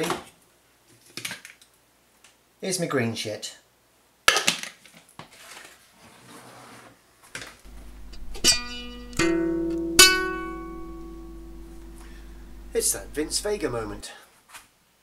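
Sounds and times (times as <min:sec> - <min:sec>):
low steady hum: 0:07.7 - 0:14.0
plucked guitar chords: 0:07.7 - 0:14.0.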